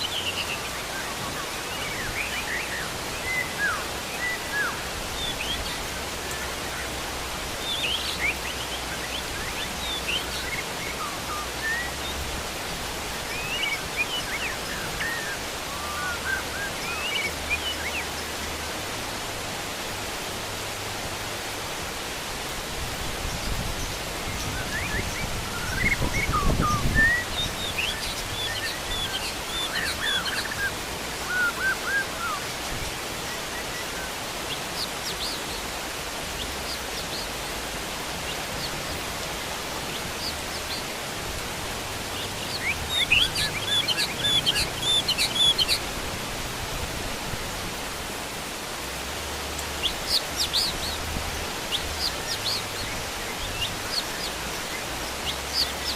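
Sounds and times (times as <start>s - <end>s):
heavy rain falling: 0.0s - 55.9s
bird chirps and calls: 24.3s - 35.6s, 42.2s - 45.8s.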